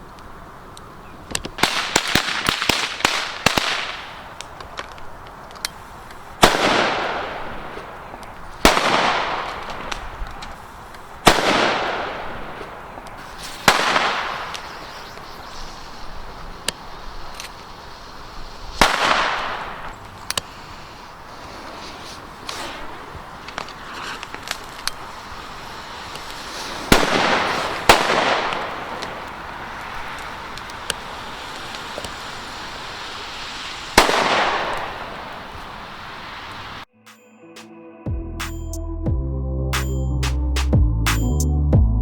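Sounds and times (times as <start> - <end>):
firecrackers crackling: 1.4 - 36.9
loud firecracker bangs with echo: 6.4 - 8.0, 8.6 - 10.2, 11.2 - 12.8, 13.6 - 14.6, 18.8 - 19.9, 26.8 - 29.2, 34.0 - 35.5.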